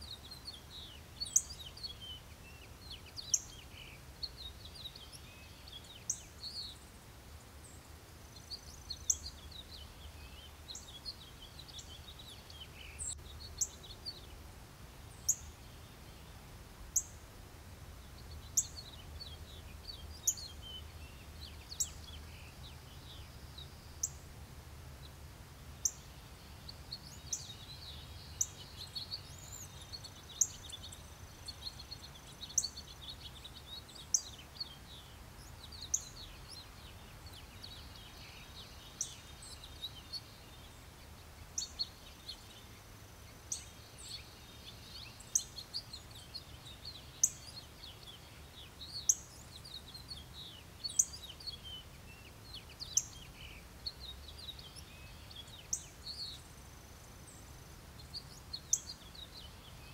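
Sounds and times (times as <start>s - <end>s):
birds twittering: 18.0s - 24.2s.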